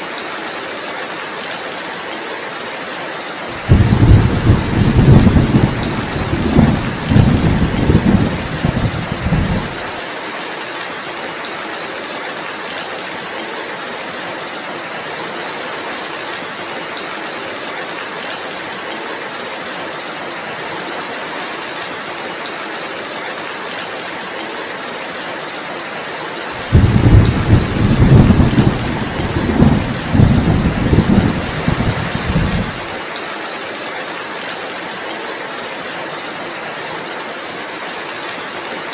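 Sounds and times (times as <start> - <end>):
heavy rain hiss: 3.2 - 11.9, 25.6 - 36.3
rolling thunder: 3.6 - 9.9, 26.6 - 33.0.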